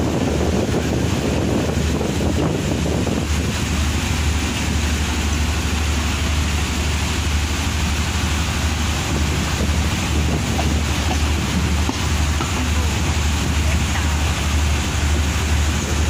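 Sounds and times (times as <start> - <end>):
train running rumble: 0.0 - 16.0
wind buffeting microphone: 0.0 - 16.0.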